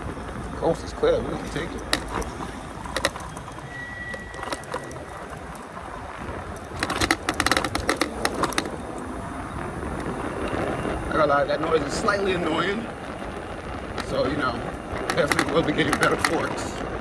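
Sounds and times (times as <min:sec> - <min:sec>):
low rumble of riding: 0:00.0 - 0:17.0
bike suspension fork rattling: 0:00.2 - 0:16.8.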